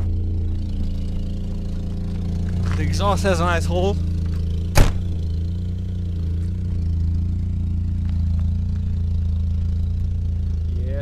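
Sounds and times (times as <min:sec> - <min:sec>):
car engine with holed exhaust: 0:00.0 - 0:11.0
sharp knock: 0:04.8 - 0:05.1.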